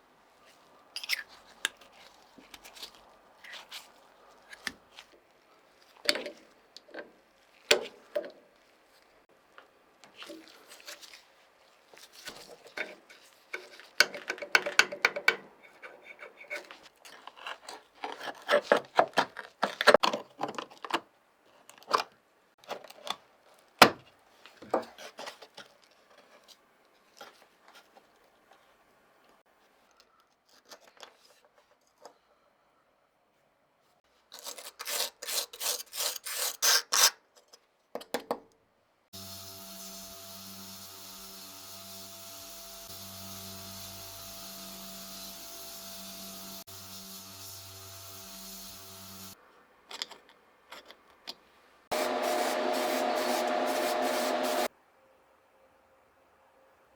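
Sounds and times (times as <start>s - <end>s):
hiss: 51.9s - 54.7s
steady hum: 51.9s - 54.7s.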